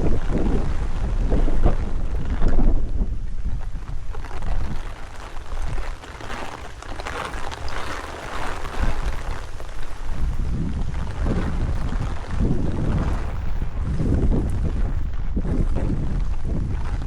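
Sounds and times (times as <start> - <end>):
heavy rain falling: 0.0 - 17.0
wind buffeting microphone: 0.0 - 17.0.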